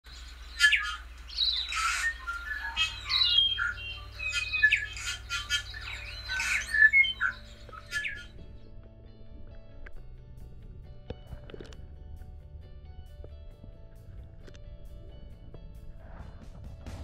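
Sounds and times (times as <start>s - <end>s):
birds squawking and chirping: 0.1s - 8.4s
soft music with low notes: 0.1s - 17.0s.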